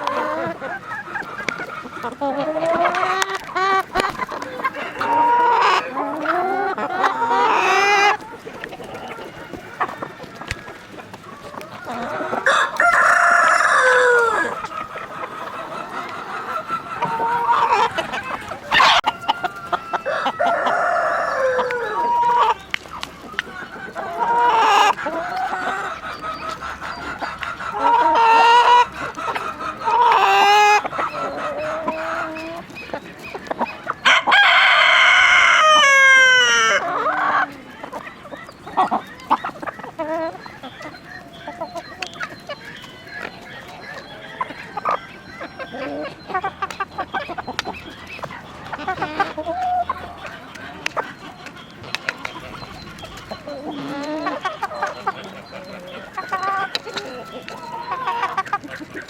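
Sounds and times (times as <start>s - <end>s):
chickens clucking: 0.0s - 59.0s
rooster crowing: 12.1s - 14.6s, 18.7s - 22.3s, 34.0s - 36.8s.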